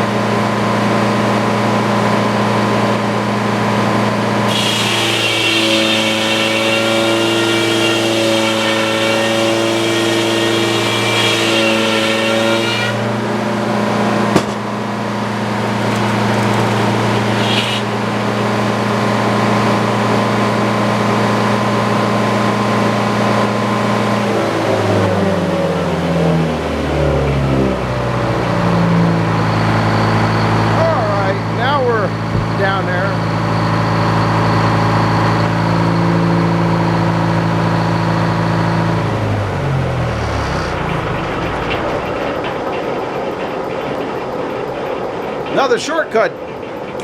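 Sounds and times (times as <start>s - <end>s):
sawmill engine running: 0.0s - 47.0s
saw whine cutting wood: 3.7s - 21.6s.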